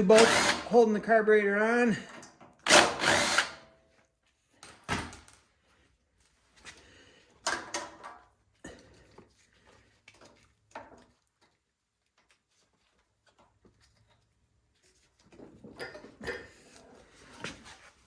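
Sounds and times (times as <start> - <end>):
tools and metal parts clattering: 15.1 - 16.8.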